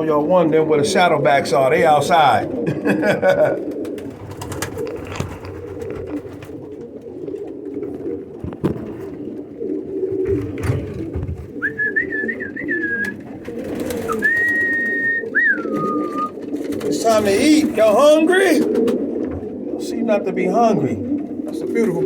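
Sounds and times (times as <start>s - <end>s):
pigeons cooing: 0.0s - 22.0s
high wavering whistle: 11.6s - 13.2s, 14.1s - 16.4s.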